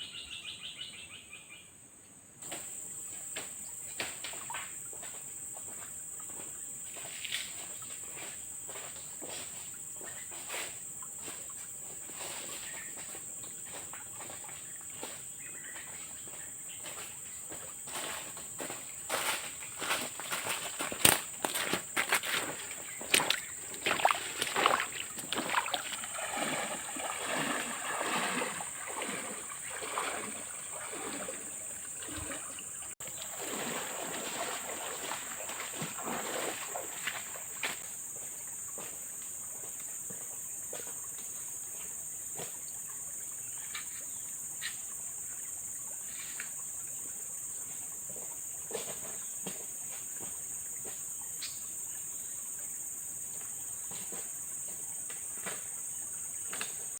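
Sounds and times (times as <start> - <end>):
water splashing and sloshing: 2.5 - 56.9
water dripping: 15.8 - 41.2.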